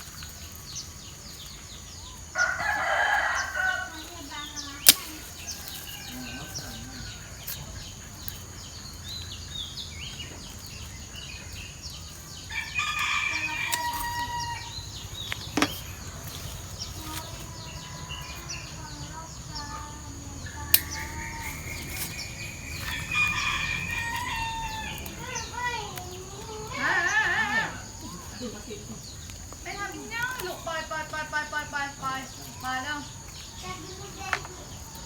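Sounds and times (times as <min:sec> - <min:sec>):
high insect chirping: 0:00.0 - 0:35.0
rooster crowing: 0:02.3 - 0:04.4, 0:05.4 - 0:07.6, 0:12.4 - 0:14.9, 0:20.5 - 0:25.5, 0:26.7 - 0:28.3
sharp clicks: 0:20.7 - 0:21.2.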